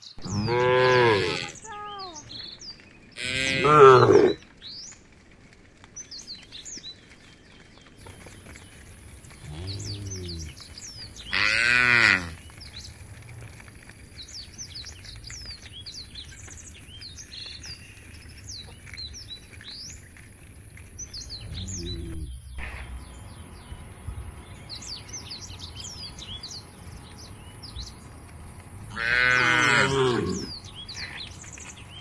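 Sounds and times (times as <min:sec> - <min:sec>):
small birds chirping: 0:00.0 - 0:32.0
steady low rumble: 0:20.7 - 0:29.0
brief low sound: 0:21.4 - 0:24.8.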